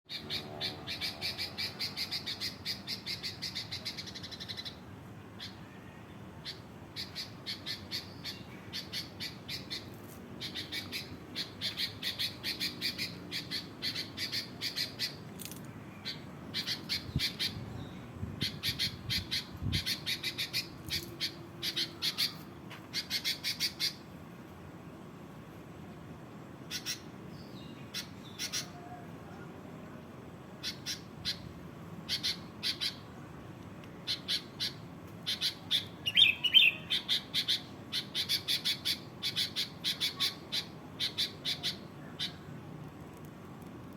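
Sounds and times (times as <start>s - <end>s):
bird chattering calls: 0.1s - 4.8s, 6.4s - 15.2s, 16.0s - 17.6s, 18.4s - 24.0s, 26.7s - 27.1s, 27.9s - 29.0s, 30.6s - 31.5s, 32.1s - 33.1s, 34.0s - 42.5s.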